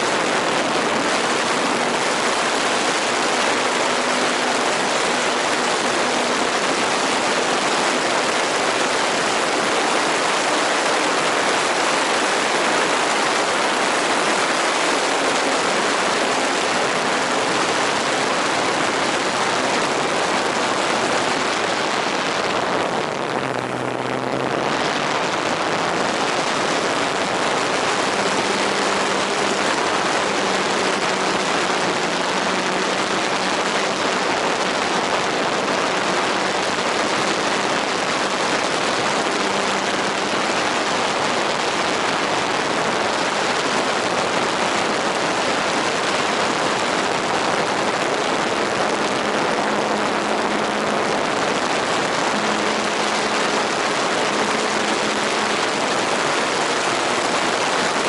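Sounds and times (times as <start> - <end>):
faint motor hum: 0.0 - 58.0
steady rushing noise: 0.0 - 58.0.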